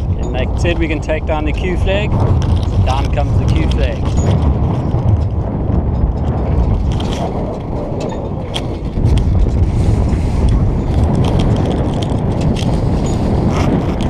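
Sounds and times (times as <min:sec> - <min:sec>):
wind buffeting microphone: 0:00.0 - 0:14.0
boat gear clicking and knocking: 0:02.2 - 0:09.6, 0:10.4 - 0:14.0.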